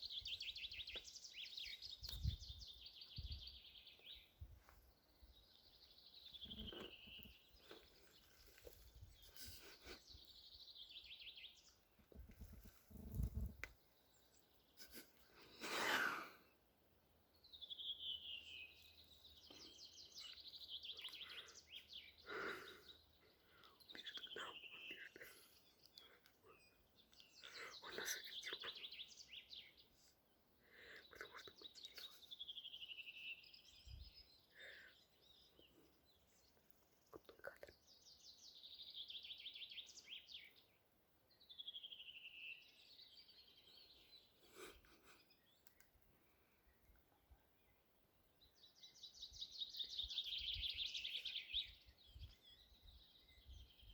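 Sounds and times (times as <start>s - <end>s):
small songbird singing: 0.0s - 16.6s, 17.2s - 53.9s.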